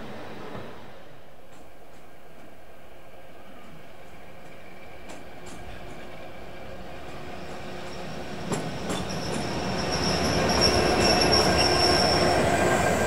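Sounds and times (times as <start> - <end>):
diesel train passing: 0.0 - 13.0
high-pitched wheel squeal: 9.0 - 13.0.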